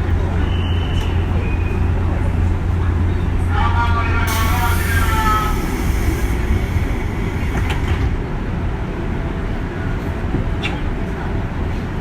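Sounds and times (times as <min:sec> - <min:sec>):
train wheels rumbling: 0:00.0 - 0:12.0
faint rail click: 0:10.3 - 0:10.9.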